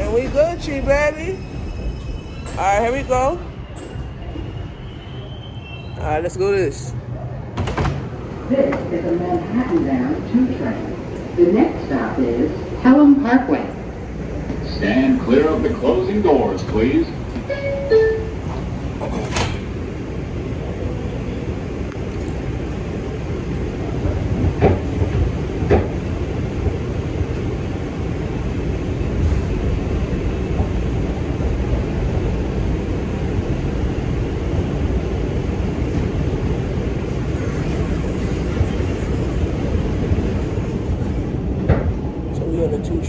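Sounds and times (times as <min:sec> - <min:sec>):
subway train wheels rumbling: 0:00.0 - 0:43.0
sharp train clacks: 0:07.6 - 0:27.6.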